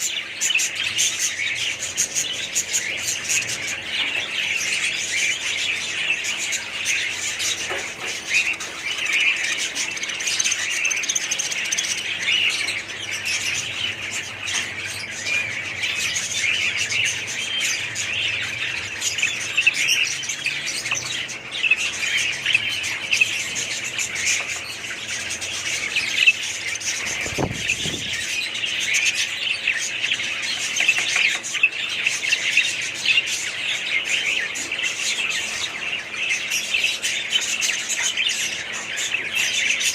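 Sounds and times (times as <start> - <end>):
parrots chirping and chattering: 0.0 - 39.9.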